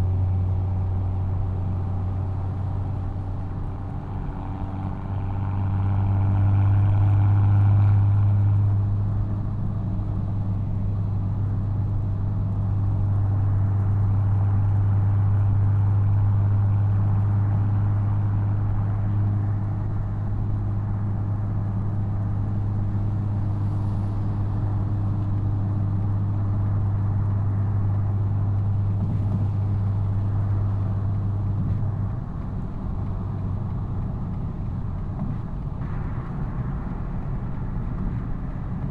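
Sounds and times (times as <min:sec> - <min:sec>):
car exhaust droning: 0:20.9 - 0:38.9.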